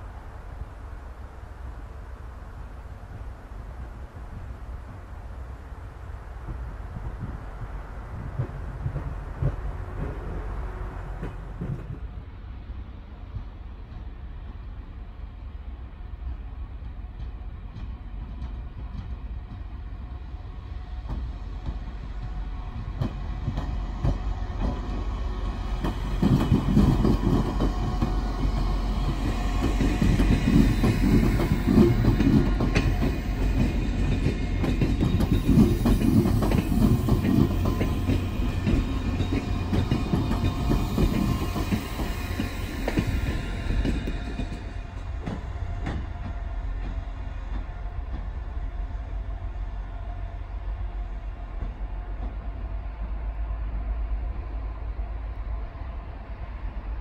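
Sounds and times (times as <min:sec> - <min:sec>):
diesel train rumbling past: 0:00.0 - 0:57.0
rail clicks: 0:05.9 - 0:15.0, 0:16.3 - 0:20.1, 0:20.9 - 0:53.2.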